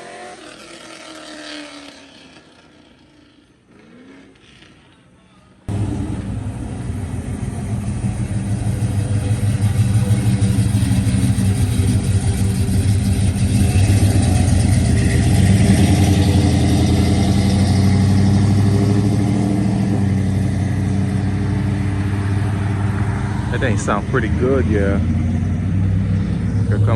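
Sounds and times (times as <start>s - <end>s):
car engine running at low revs: 5.7s - 26.9s.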